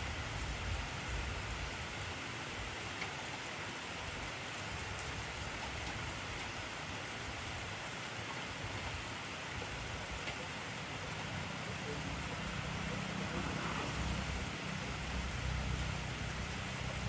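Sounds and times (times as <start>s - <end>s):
intense rain hissing: 0.0s - 17.0s
faint raindrop ticks: 2.9s - 3.2s, 5.0s - 6.1s, 8.0s - 12.0s.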